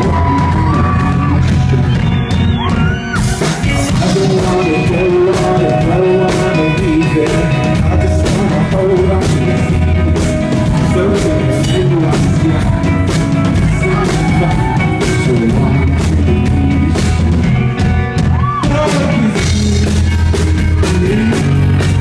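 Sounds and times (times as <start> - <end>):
rock band playing live: 0.0 - 22.0
wavering lead guitar line: 0.0 - 22.0.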